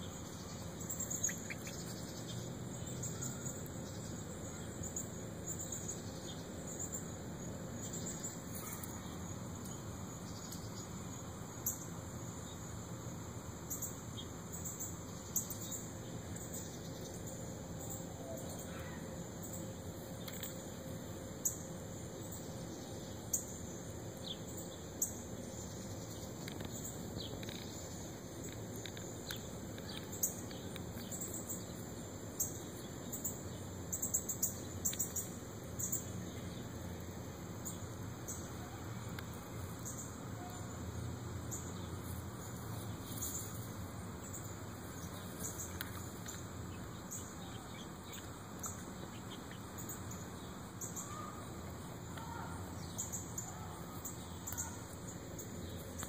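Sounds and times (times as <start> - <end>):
steady low outdoor hum: 0.0 - 56.0.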